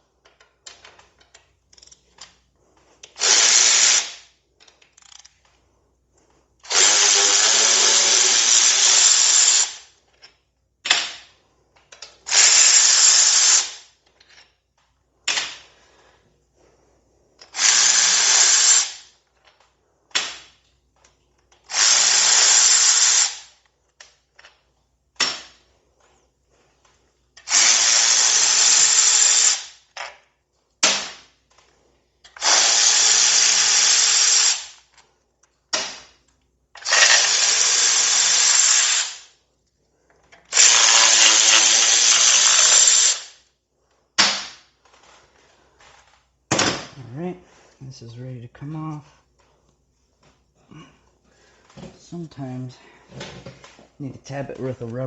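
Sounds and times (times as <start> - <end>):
power tool running in bursts: 3.2 - 4.1, 6.7 - 9.8, 12.3 - 13.8, 17.6 - 19.0, 27.4 - 29.7, 32.4 - 34.7, 36.8 - 39.2, 40.5 - 43.3.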